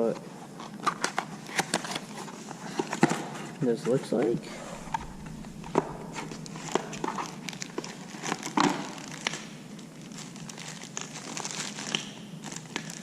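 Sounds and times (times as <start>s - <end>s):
plastic packaging crinkling: 5.1s - 13.0s.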